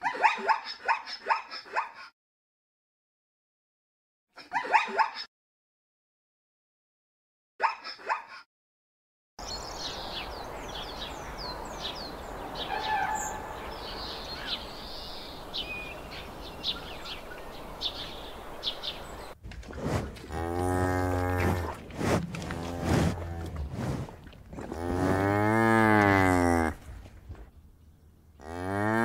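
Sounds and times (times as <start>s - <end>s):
small birds chirping: 9.4s - 19.4s
steady outdoor hiss: 9.4s - 19.4s
cow mooing: 20.2s - 21.8s, 22.4s - 23.6s, 24.6s - 26.8s, 28.4s - 29.0s.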